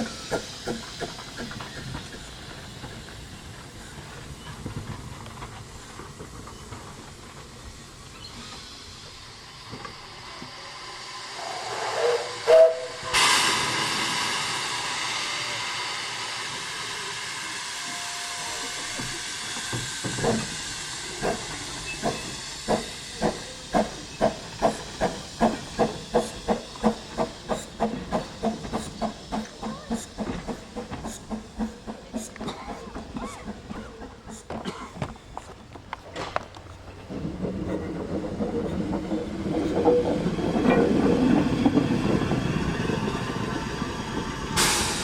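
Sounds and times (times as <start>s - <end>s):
loud hiss of steam: 0.0s - 45.0s
steam locomotive exhaust beats: 0.0s - 45.0s
steam locomotive whistle: 11.4s - 13.6s, 17.6s - 19.0s.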